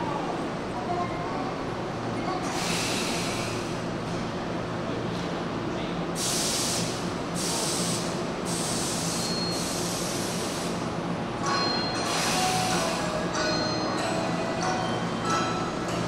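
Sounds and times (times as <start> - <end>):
electric train humming: 6.8 - 16.0.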